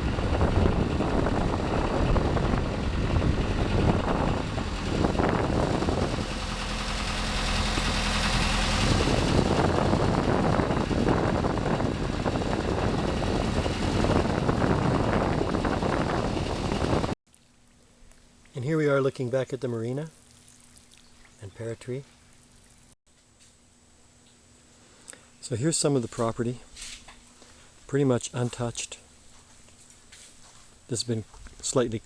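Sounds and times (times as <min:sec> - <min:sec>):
boat engine running: 0:00.0 - 0:17.2.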